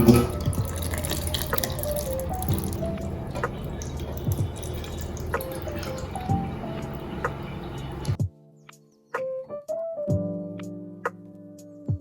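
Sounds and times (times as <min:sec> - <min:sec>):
drops plinking into water: 0:00.0 - 0:08.2
water running and dripping: 0:00.0 - 0:08.2
background music: 0:00.0 - 0:12.0.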